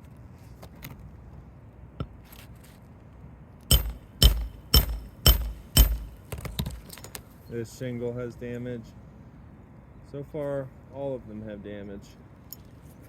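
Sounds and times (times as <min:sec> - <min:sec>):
hammer striking metal tool: 0:03.7 - 0:06.4.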